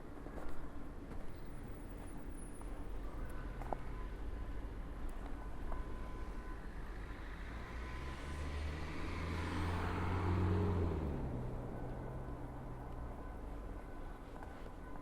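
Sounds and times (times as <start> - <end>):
vehicle passing by: 7.7 - 11.9.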